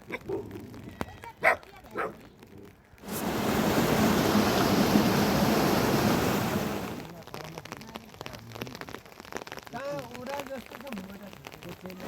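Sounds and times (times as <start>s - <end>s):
loud rushing noise: 3.0s - 7.0s.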